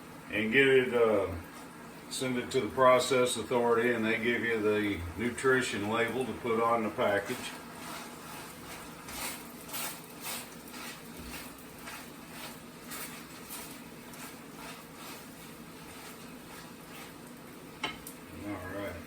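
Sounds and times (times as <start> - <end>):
food sizzling in pans: 0.0 - 19.0.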